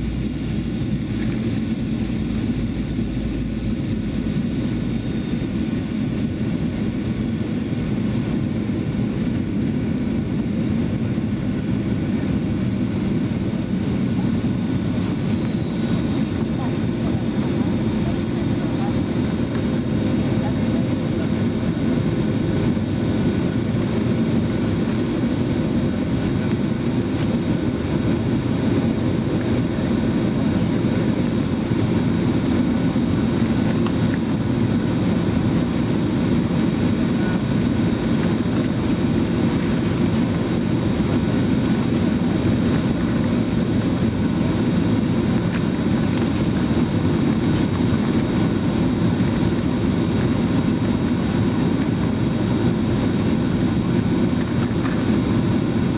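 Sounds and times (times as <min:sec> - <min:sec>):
airplane cabin engine rush: 0:00.0 - 0:55.9.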